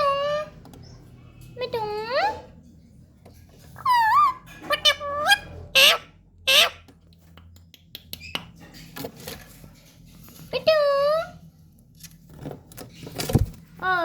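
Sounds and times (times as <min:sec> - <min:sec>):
parrot calling and squawking: 0:00.0 - 0:00.6, 0:03.8 - 0:06.9.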